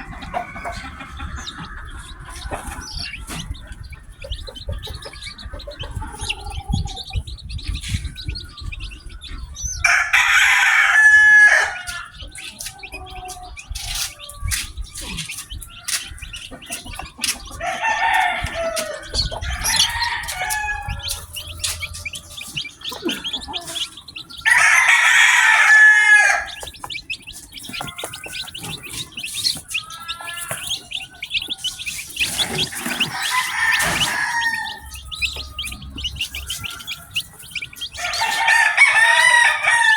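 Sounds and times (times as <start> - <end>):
adult chicken calls: 0.0 - 39.9
chicks peeping: 0.0 - 39.9
rooster crowing: 9.8 - 12.2, 17.6 - 26.8, 32.6 - 39.9.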